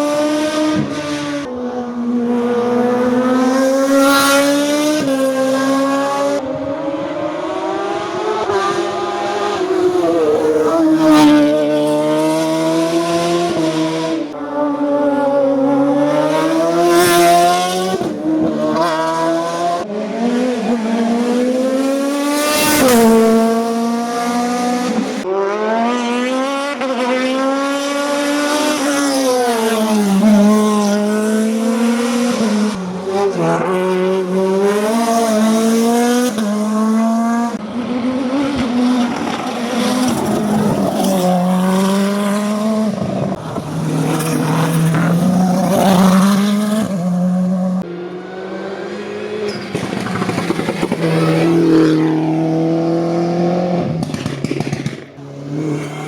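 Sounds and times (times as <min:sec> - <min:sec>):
race car engines revving: 0:00.0 - 0:56.0.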